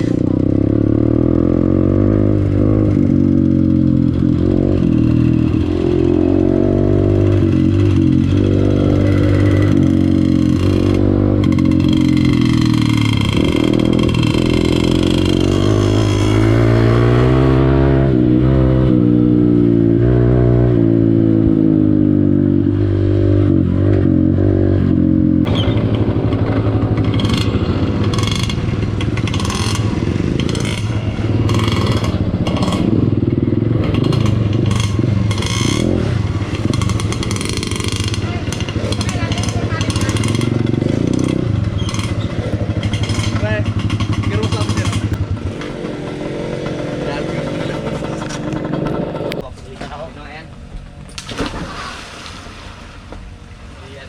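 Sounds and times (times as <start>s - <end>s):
dirt bike engine revving: 0.0s - 49.6s.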